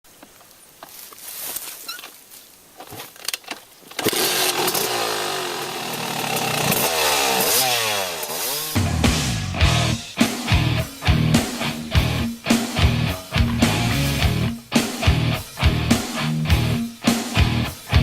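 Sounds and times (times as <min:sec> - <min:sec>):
dirt bike engine revving: 0:04.0 - 0:18.0.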